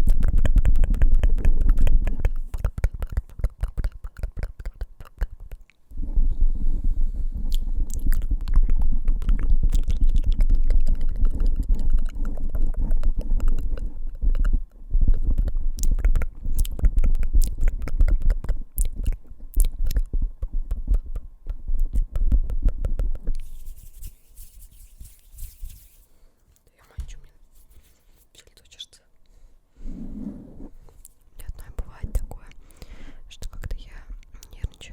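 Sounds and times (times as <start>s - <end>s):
fingertips tapping on microphone: 0.0s - 5.6s.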